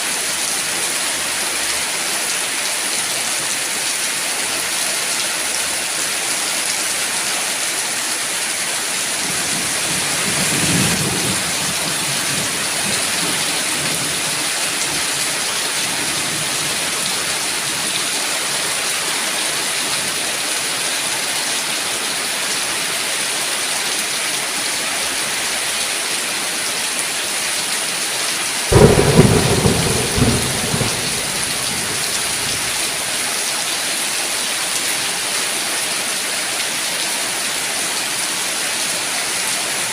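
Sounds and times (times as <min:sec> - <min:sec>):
heavy rain: 0:00.0 - 0:39.9
loud thunderclap: 0:28.7 - 0:32.8
low roll of thunder: 0:28.7 - 0:32.8.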